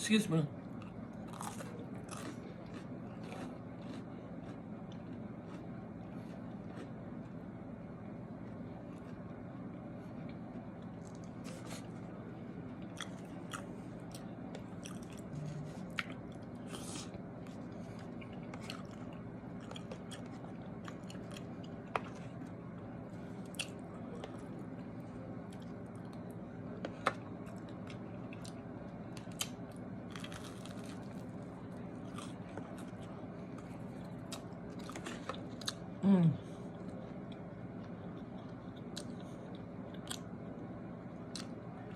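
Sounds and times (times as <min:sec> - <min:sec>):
low background hum: 0:00.0 - 0:41.9
person chewing: 0:00.8 - 0:07.4, 0:12.7 - 0:26.2, 0:27.4 - 0:35.9, 0:36.7 - 0:40.3.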